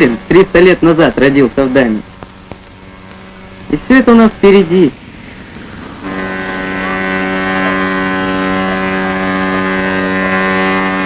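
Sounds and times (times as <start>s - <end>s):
ship's horn blast: 5.7s - 11.0s.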